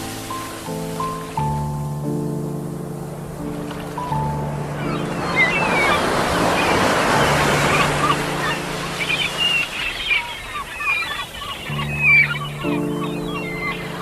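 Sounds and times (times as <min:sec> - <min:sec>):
soft sustained music chord: 0:00.0 - 0:10.5, 0:11.5 - 0:14.0
sea waves breaking: 0:00.0 - 0:14.0
seagulls calling: 0:03.4 - 0:14.0.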